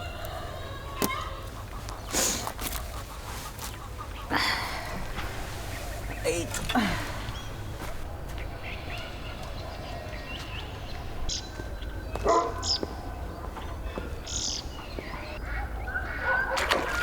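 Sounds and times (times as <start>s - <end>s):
steady low rumble: 0.0s - 12.1s
bird chirps: 0.0s - 17.0s.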